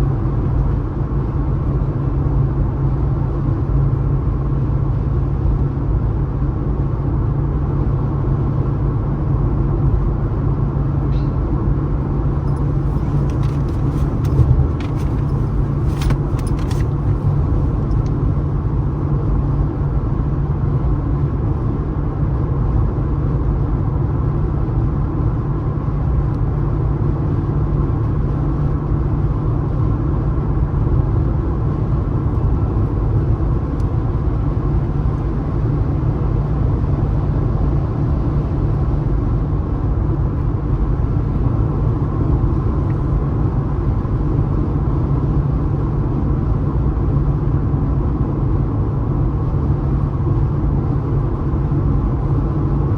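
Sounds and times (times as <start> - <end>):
car road rumble: 0.0 - 21.8.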